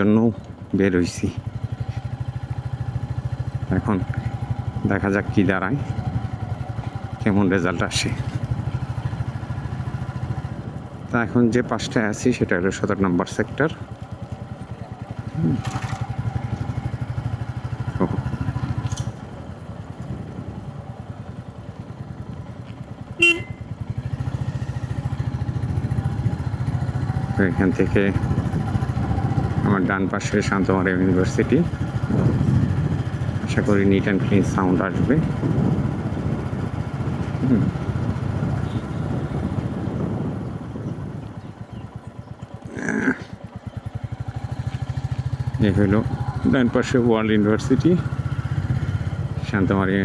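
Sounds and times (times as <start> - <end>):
motorcycle engine running: 0.0 - 50.0
vehicle horn toot: 23.1 - 23.8, 38.5 - 39.5.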